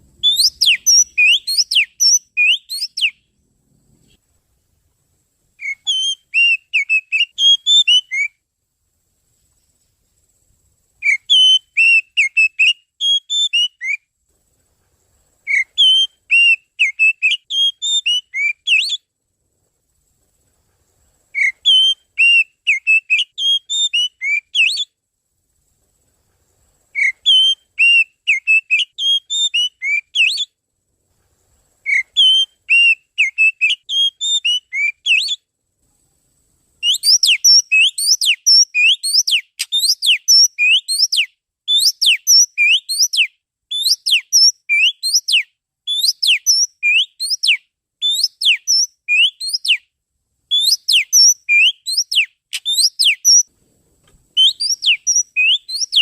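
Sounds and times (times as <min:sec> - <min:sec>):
songbird whistling: 0:00.1 - 0:03.4, 0:05.6 - 0:08.4, 0:11.0 - 0:14.1, 0:15.4 - 0:19.1, 0:21.3 - 0:25.0, 0:26.9 - 0:30.6, 0:31.8 - 0:35.5, 0:36.8 - 0:49.9, 0:50.5 - 0:53.5, 0:54.3 - 0:56.0.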